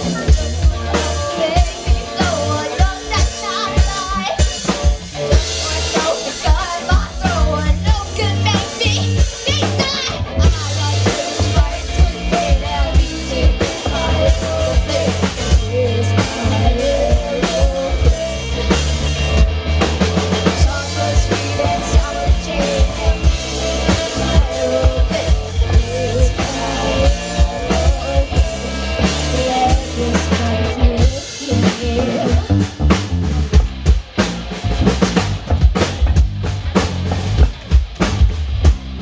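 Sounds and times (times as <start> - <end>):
bass line: 0.0 - 39.0
drum kit beat: 0.0 - 39.0.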